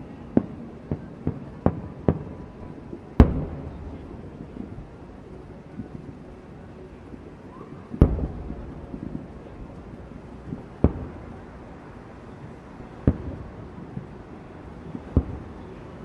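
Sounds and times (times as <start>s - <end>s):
fireworks booming: 3.2s - 5.2s, 8.0s - 11.8s, 13.0s - 14.1s, 14.8s - 15.6s
small firework pops: 7.9s - 9.9s.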